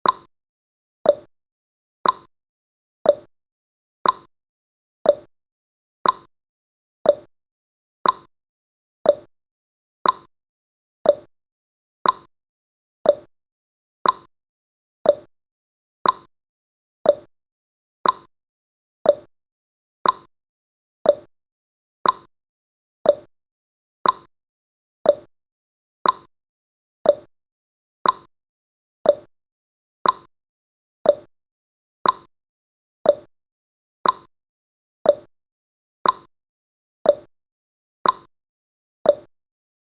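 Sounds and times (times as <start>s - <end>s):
countdown timer ticking: 7.1s - 7.3s, 9.1s - 9.3s, 11.1s - 11.3s, 13.1s - 13.3s, 15.1s - 15.3s, 17.1s - 17.3s, 19.1s - 19.3s, 21.1s - 21.3s, 23.1s - 23.3s, 24.0s - 24.3s, 25.1s - 25.3s, 26.0s - 26.3s, 27.1s - 27.3s, 29.1s - 29.3s, 30.0s - 30.3s, 31.1s - 31.3s, 32.0s - 32.3s, 33.1s - 33.3s, 34.0s - 34.3s, 35.1s - 35.3s, 36.0s - 36.3s, 37.1s - 37.3s, 38.0s - 38.3s, 39.1s - 39.3s.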